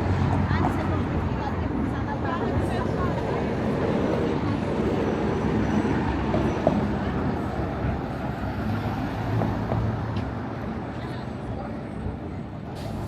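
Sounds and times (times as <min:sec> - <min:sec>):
voices of passers-by: 0:00.0 - 0:13.0.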